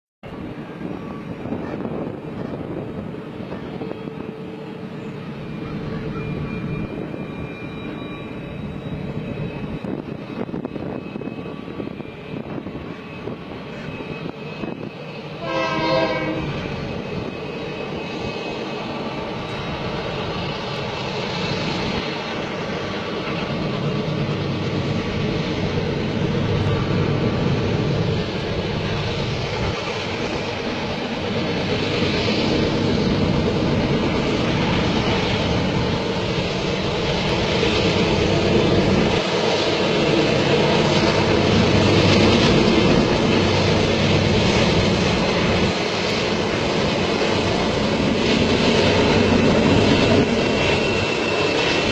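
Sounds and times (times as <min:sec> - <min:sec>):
freight train rumbling: 0:00.2 - 0:51.9
train horn blast: 0:15.4 - 0:16.7.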